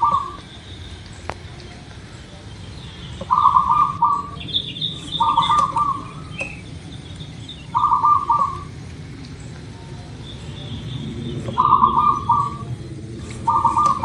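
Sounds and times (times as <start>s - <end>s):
dove cooing: 0.0s - 0.6s, 3.2s - 6.6s, 7.6s - 8.8s, 11.3s - 12.8s, 13.4s - 14.0s
high bird chirps: 0.0s - 1.3s, 2.6s - 8.7s, 10.2s - 12.7s, 13.5s - 14.0s.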